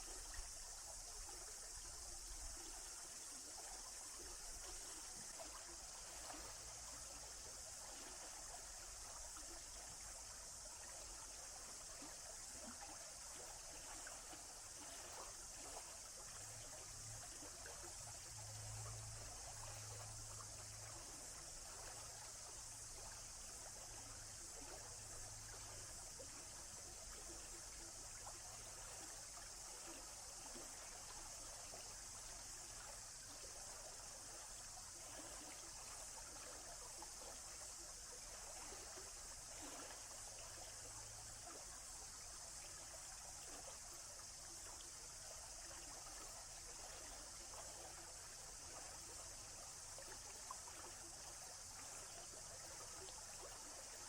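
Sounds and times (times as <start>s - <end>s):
stream rushing and trickling: 0.0s - 54.0s.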